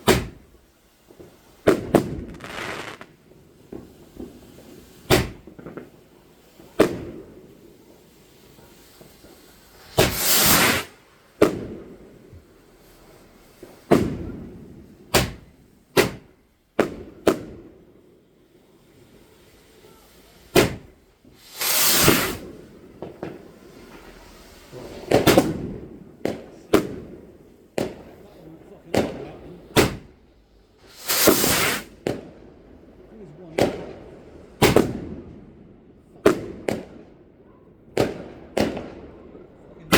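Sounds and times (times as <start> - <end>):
fireworks hissing bursts: 0.0 - 14.3, 18.5 - 28.7, 29.6 - 32.1
fireworks bangs: 0.0 - 17.7, 18.9 - 30.2, 30.8 - 32.4, 33.5 - 35.5, 36.1 - 37.2, 38.0 - 39.9.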